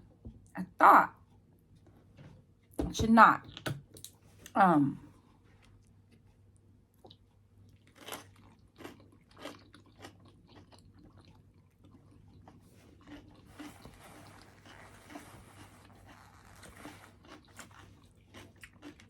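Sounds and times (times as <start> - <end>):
person chewing crunchy food: 5.4 - 19.0.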